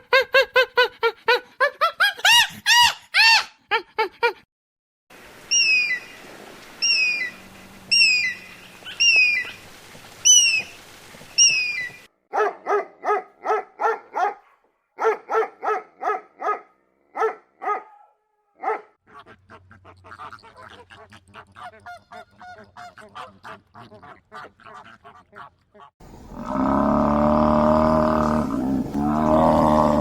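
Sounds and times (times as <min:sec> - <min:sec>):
high falling animal call: 0:05.5 - 0:06.2, 0:06.8 - 0:12.1, 0:26.3 - 0:30.0
rapid barks or yaps: 0:12.3 - 0:21.8.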